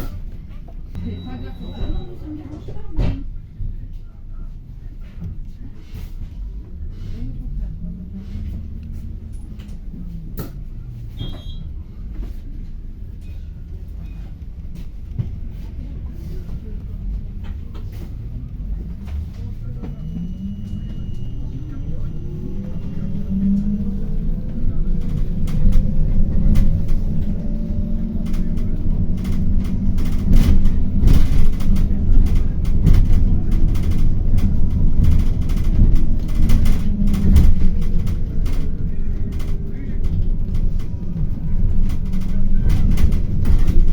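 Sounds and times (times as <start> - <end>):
bus engine rumble: 0.0 - 43.9
short high beep: 1.0 - 2.2
bodywork rattling and knocking: 24.2 - 43.9.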